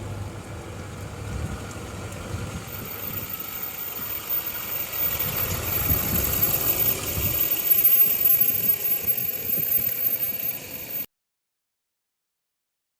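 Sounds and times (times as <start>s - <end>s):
diesel engine running: 0.0s - 11.1s
high turbo whine: 0.0s - 11.1s.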